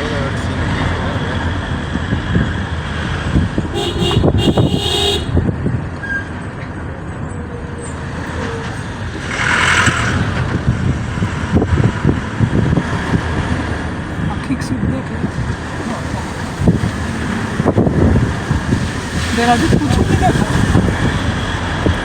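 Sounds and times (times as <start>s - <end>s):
motor vehicle running: 0.0s - 22.0s
horn tooting: 3.7s - 5.4s.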